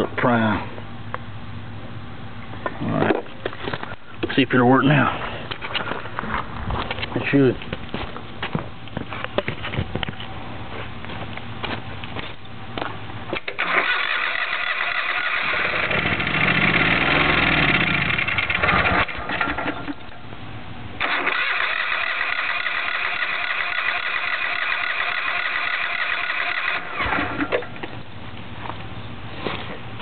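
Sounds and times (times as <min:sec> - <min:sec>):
electric starter cranking engine: 0:13.4 - 0:20.0, 0:21.0 - 0:27.7.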